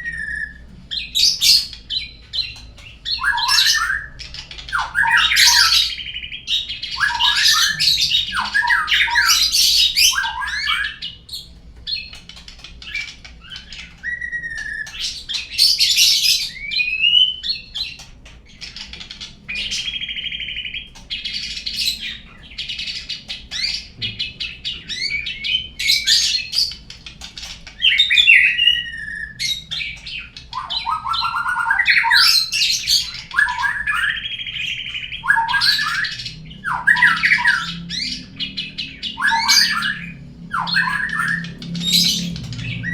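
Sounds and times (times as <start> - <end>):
songbird singing: 0.0 - 42.9.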